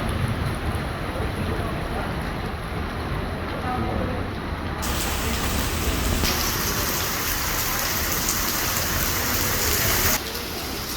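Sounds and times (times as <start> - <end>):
heavy rain hissing: 4.8 - 10.9.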